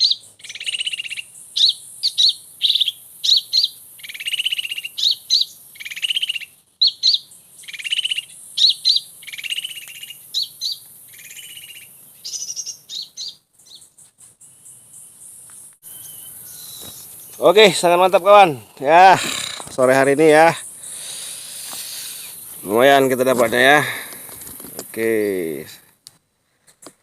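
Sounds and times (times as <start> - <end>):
buzzy bird trills: 0.0 - 15.1
small birds chirping: 0.0 - 26.2.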